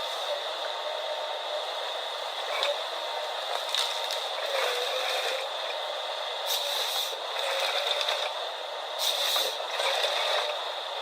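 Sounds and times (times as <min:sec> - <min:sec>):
harvester machine clattering and scraping: 0:09.0 - 0:10.6.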